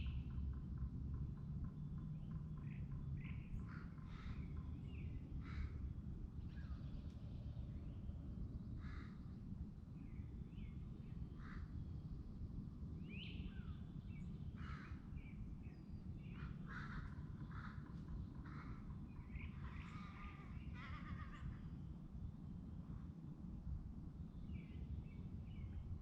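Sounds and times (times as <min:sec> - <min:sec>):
birds calling and chirping: 0:13.1 - 0:21.6.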